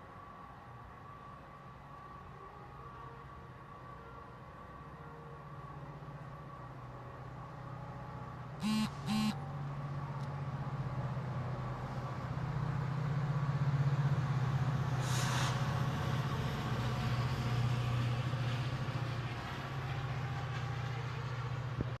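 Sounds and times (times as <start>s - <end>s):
train droning: 0.0s - 22.0s
burst of hiss: 15.0s - 15.7s.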